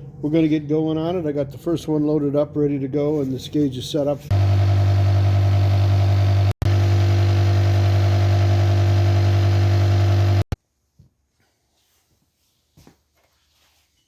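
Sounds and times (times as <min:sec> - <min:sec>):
grinder motor humming: 0:04.3 - 0:10.6.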